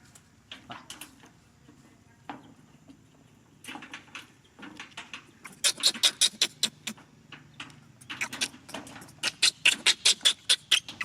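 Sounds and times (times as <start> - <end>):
infant monkey shrill squeals: 5.6 - 7.0, 9.2 - 11.0.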